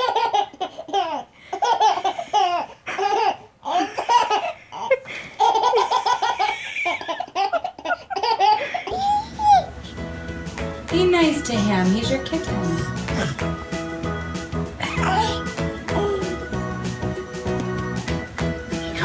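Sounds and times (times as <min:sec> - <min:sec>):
baby laughing: 0:00.0 - 0:10.0, 0:14.7 - 0:16.6.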